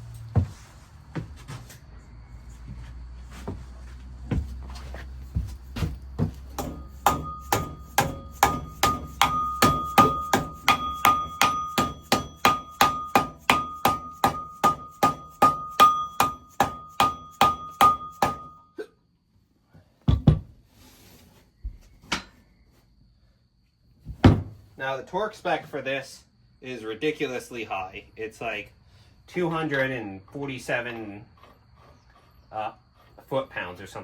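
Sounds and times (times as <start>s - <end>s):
hammer striking metal: 6.5s - 18.6s.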